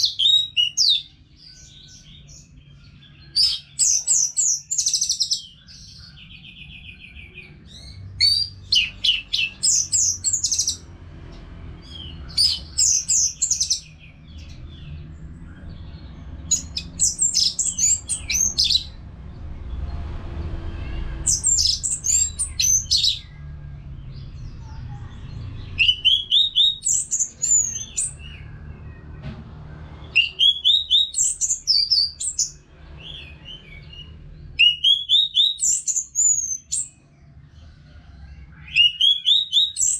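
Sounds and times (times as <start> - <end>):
thrush singing: 6.3 - 29.1.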